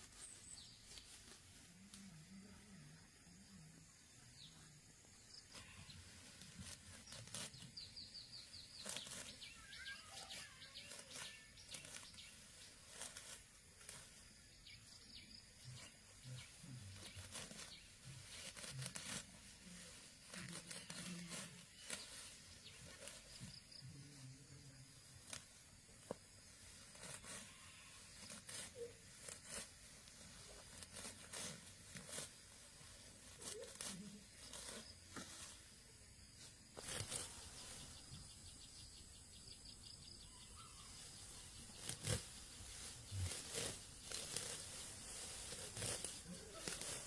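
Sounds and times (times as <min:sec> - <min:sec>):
faint bird chirps: 0:07.0 - 0:12.8, 0:37.1 - 0:43.8.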